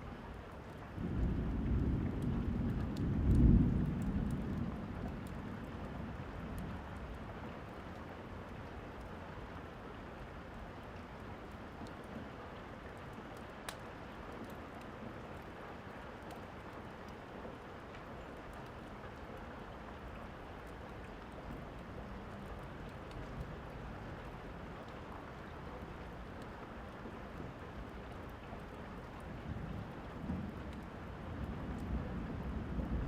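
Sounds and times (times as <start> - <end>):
steady rain: 0.0 - 33.0
faint fireplace crackles: 0.2 - 32.1
rumble of thunder: 0.9 - 7.2, 29.3 - 33.0.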